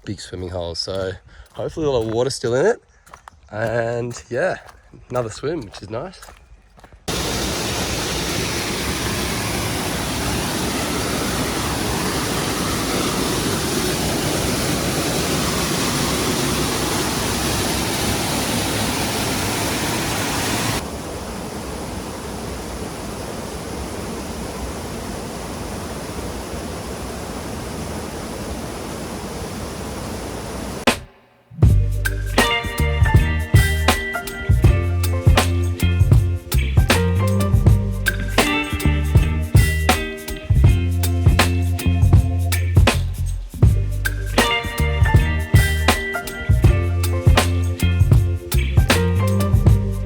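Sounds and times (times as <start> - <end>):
waterfall rushing: 7.1 - 30.9.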